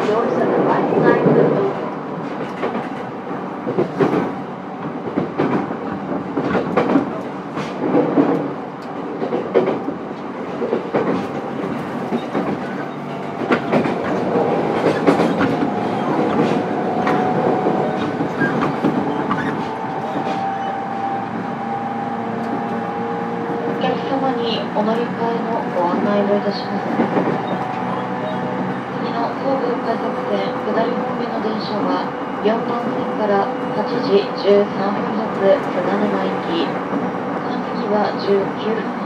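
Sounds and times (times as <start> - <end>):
train wheels clacking over rail joints: 10.6 - 20.5.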